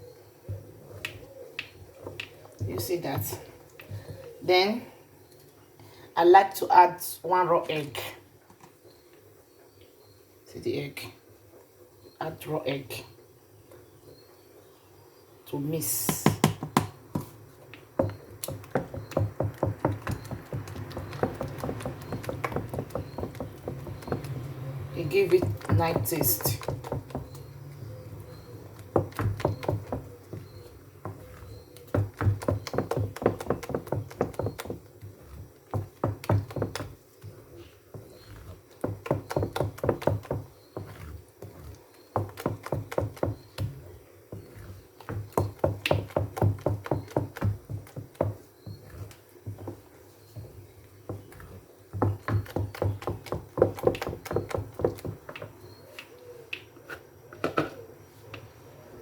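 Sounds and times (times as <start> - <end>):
batter beaten by hand in bowl: 0.4 - 4.4, 15.9 - 56.7.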